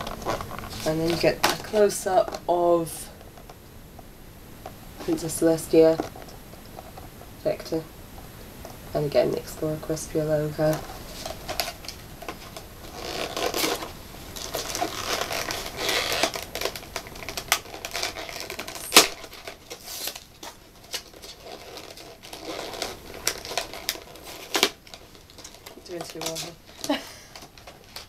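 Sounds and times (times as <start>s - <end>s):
cardboard box rustling and scraping: 10.9s - 26.5s.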